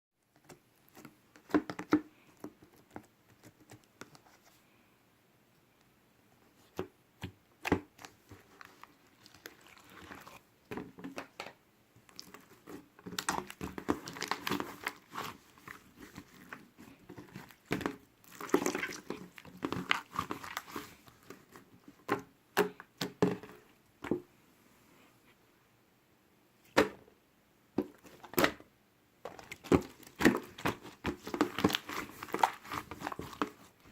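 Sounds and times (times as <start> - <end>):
crinkling and rustling: 7.6 - 22.3, 27.8 - 28.6, 29.2 - 33.9.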